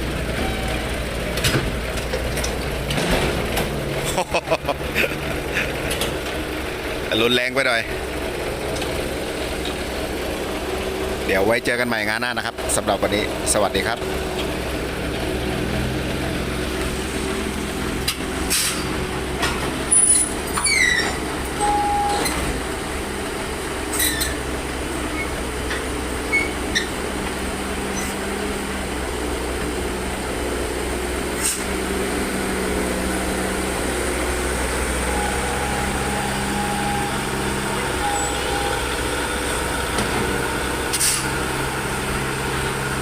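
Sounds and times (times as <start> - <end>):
diesel engine running: 0.0 - 43.0
short high squeaks: 19.9 - 22.5, 23.9 - 24.4, 26.3 - 27.0, 35.1 - 39.0.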